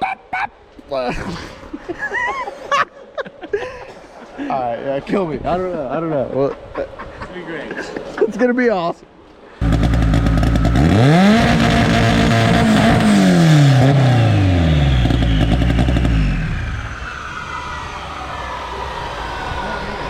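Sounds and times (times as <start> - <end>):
car engine revving hard: 9.6 - 17.0.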